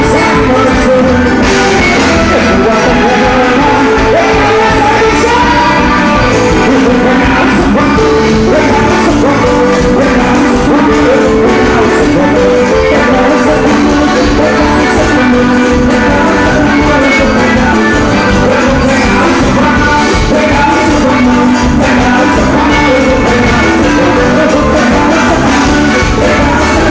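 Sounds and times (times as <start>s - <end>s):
person singing with music: 0.0s - 26.9s.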